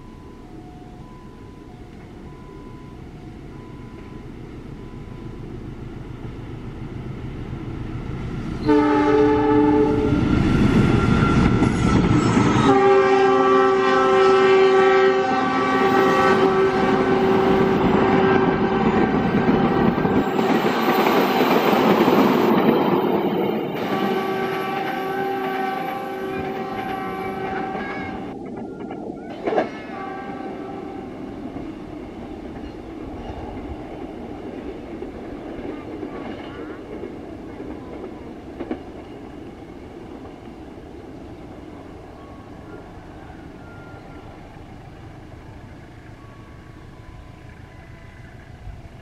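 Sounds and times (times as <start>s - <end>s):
passenger train rumble: 0.0s - 49.0s
locomotive horn blasts: 8.6s - 10.2s, 12.2s - 19.8s, 23.8s - 28.4s, 29.7s - 31.2s
wheels clickety-clack: 17.0s - 29.9s, 31.4s - 40.6s.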